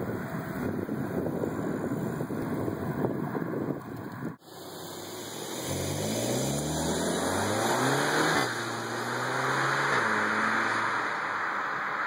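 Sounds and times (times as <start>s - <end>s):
car engine accelerating past: 5.3s - 12.0s.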